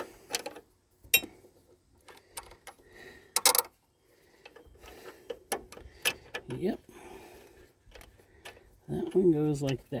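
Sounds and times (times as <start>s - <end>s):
metal parts clicking and clinking: 3.4s - 3.7s.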